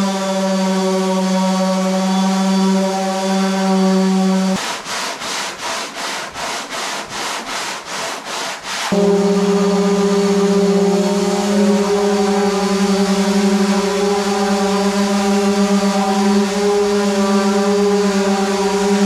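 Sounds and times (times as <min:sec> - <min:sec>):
power tool motor humming: 0:08.9 - 0:19.0.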